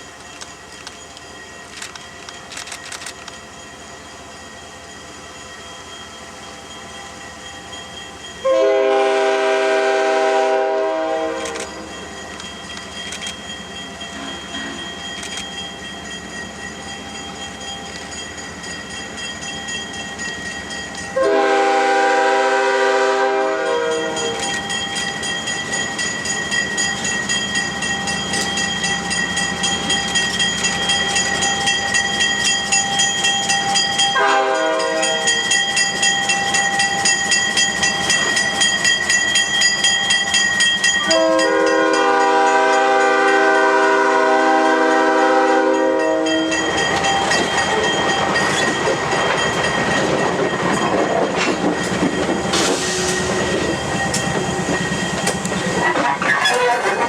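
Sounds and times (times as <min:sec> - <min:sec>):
train running rhythmic beat: 0:00.0 - 0:57.0
locomotive horn blasts: 0:08.5 - 0:11.6, 0:21.2 - 0:24.4, 0:34.2 - 0:35.4, 0:41.1 - 0:46.7.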